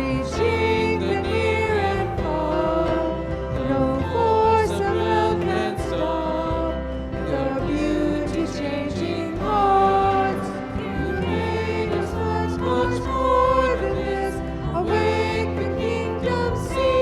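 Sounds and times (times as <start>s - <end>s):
instrumental accompaniment: 0.0s - 17.0s
voices singing held notes: 0.0s - 17.0s.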